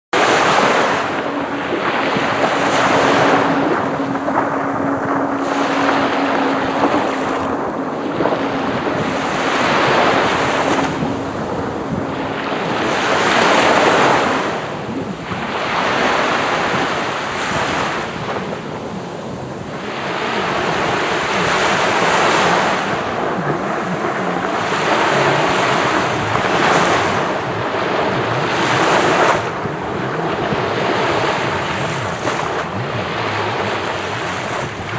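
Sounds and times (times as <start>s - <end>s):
waves breaking on a beach: 0.1s - 34.9s
steady low hum: 0.2s - 15.5s.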